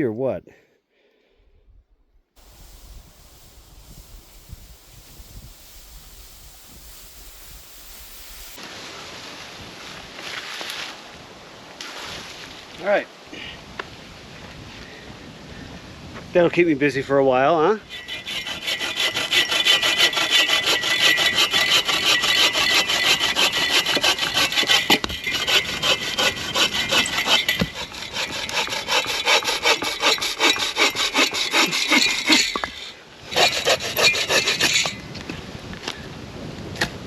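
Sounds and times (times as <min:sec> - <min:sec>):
bow saw cutting wood: 0:17.9 - 0:35.0.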